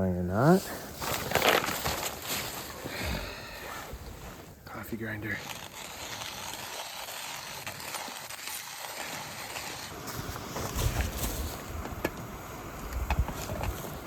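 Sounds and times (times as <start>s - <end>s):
coffee grinder grinding beans: 4.7s - 10.1s.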